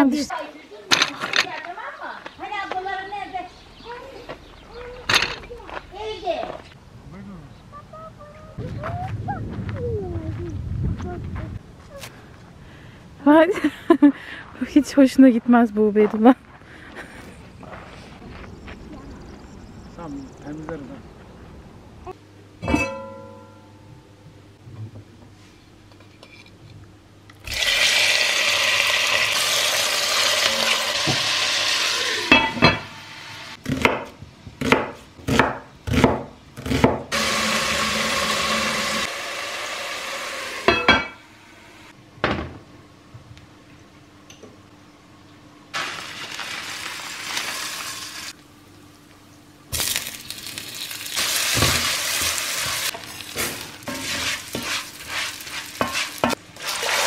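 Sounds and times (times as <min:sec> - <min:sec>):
dishes and utensils clinking: 0:22.6 - 0:23.7, 0:32.3 - 0:32.9, 0:40.7 - 0:41.2.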